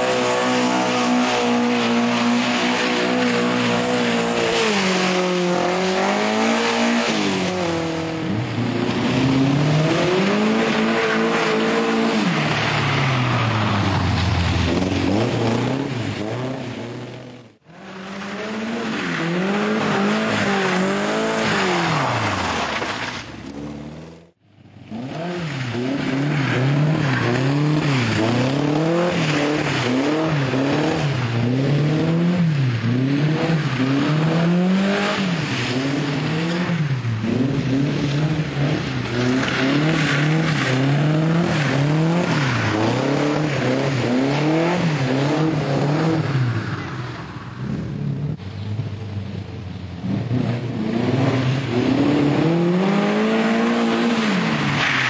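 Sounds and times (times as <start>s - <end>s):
car engine revving: 0.0s - 46.8s, 50.0s - 55.0s
tyre and road noise: 0.0s - 55.0s.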